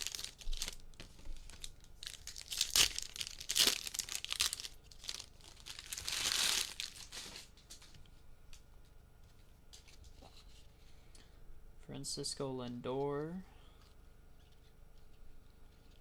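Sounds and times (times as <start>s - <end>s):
foil wrappers crinkling and tearing: 0.0s - 8.0s.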